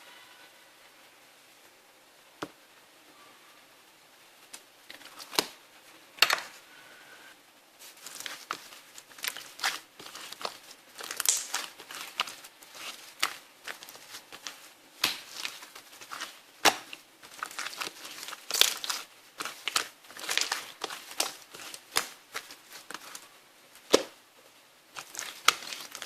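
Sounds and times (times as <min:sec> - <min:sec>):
crinkling and crackling: 0:04.4 - 0:06.6, 0:07.8 - 0:26.0.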